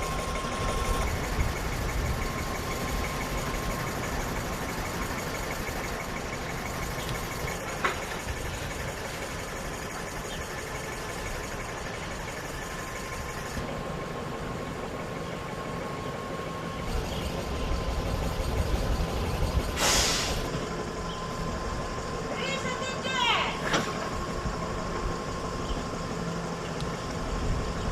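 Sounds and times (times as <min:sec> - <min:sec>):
electric vehicle whine and rumble: 0:00.0 - 0:27.9
air release hiss: 0:19.7 - 0:20.5.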